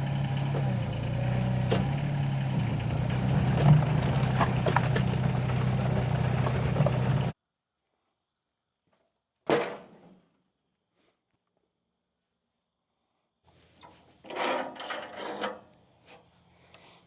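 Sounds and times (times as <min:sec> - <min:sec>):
engine idling: 0:00.0 - 0:07.3
knocks and clicks: 0:01.7 - 0:07.3.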